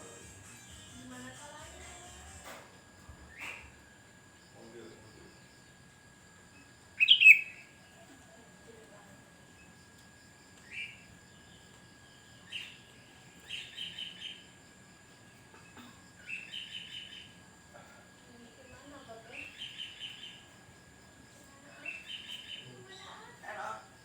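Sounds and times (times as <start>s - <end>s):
bulbul calling: 7.0s - 7.7s.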